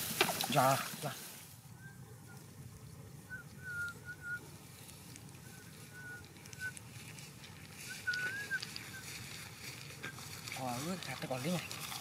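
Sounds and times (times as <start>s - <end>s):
grass rustling: 0.0s - 12.0s
low outdoor rumble: 0.0s - 12.0s
bird whistled chirps: 3.3s - 4.5s, 5.4s - 6.8s, 7.9s - 9.1s.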